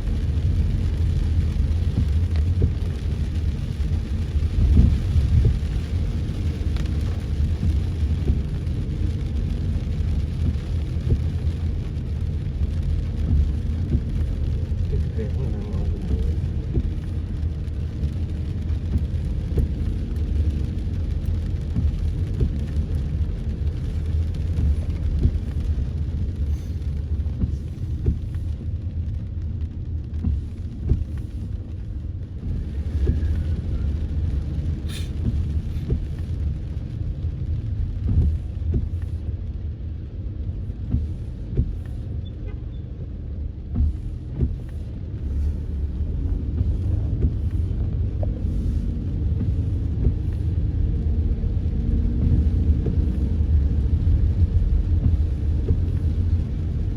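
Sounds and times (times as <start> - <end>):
car and road rumble: 0.0 - 56.9
rain ticks and taps: 0.0 - 56.9.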